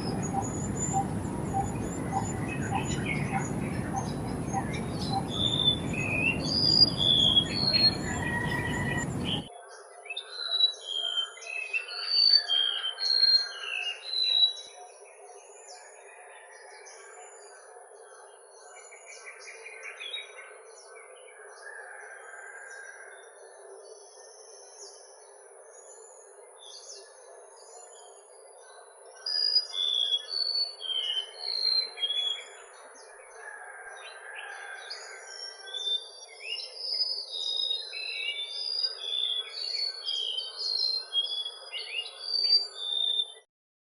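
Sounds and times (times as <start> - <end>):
birds whistling high notes: 0.0 - 9.5.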